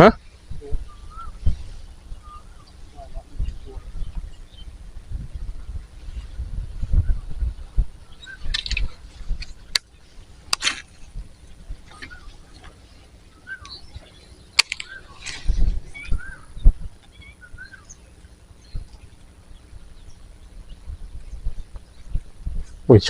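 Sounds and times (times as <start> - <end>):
small birds chirping: 0.0 - 23.0
sharp clicks: 8.5 - 9.9, 14.5 - 15.4.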